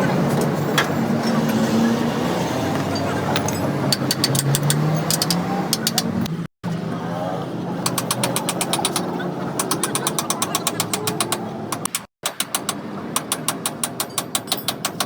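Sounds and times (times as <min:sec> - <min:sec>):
rapid metallic clicking: 0:07.8 - 0:15.0.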